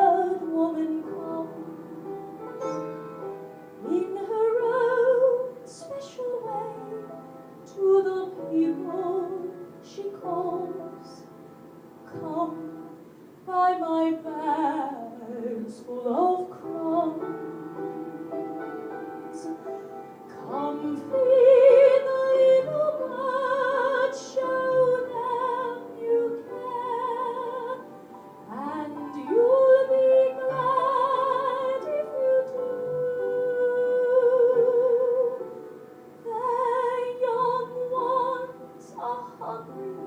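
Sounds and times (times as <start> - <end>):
woman singing slow ballad: 0.0 - 1.8, 12.1 - 12.9, 13.5 - 27.9, 28.5 - 35.5, 36.2 - 40.0.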